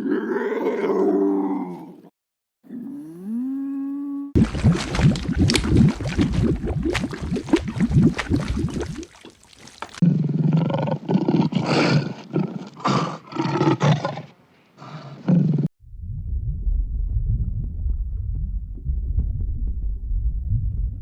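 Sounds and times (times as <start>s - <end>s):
animal growling and roaring: 0.0s - 2.1s, 10.0s - 15.7s.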